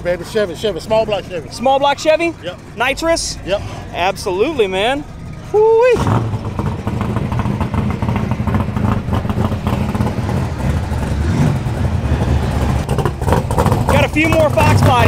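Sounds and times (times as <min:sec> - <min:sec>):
race car engines rumbling: 0:00.0 - 0:15.0.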